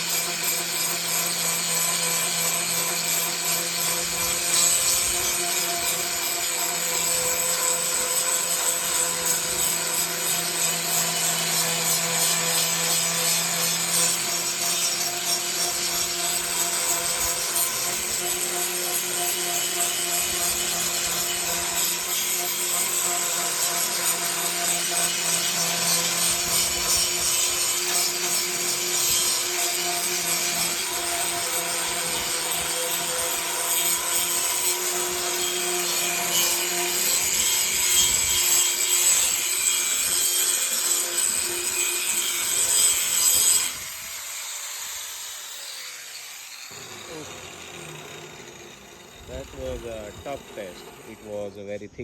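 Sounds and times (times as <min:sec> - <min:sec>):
angle grinder grinding steel: 0:00.0 - 0:52.0
motor humming: 0:46.7 - 0:51.7.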